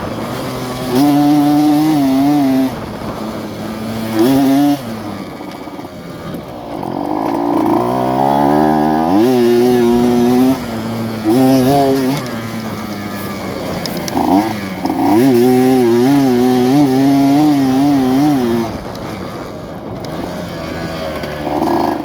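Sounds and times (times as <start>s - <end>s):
two-stroke motorcycle revving: 0.0s - 22.0s.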